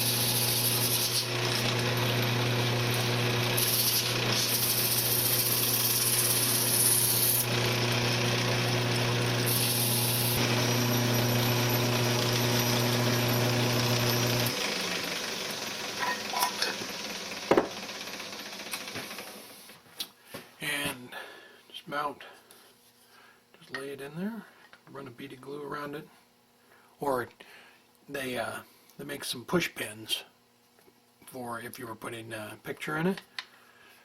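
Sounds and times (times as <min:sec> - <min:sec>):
sandpaper hissing on spinning wood: 0:00.0 - 0:01.3, 0:03.6 - 0:07.5
wood lathe motor humming: 0:00.0 - 0:19.4.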